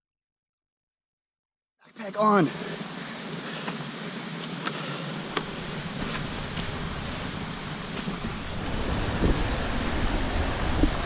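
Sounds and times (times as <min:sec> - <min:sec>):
river water rushing: 0:02.2 - 0:11.0
wind rumble on microphone: 0:05.3 - 0:11.0.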